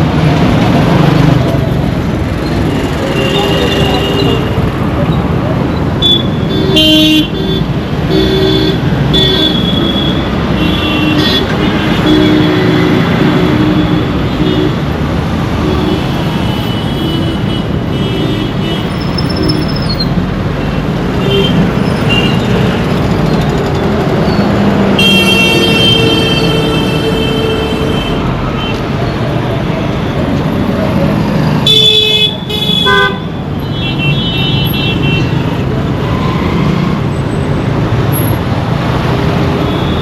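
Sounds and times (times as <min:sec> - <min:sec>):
road traffic rumble: 0:00.0 - 0:40.0
long loud horn: 0:25.0 - 0:28.3.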